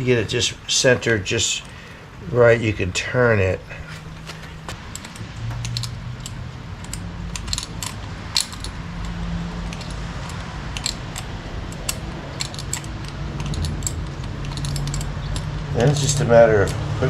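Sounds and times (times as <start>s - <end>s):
steady low hum: 0.0s - 17.0s
small metal tools clinking: 3.8s - 16.8s.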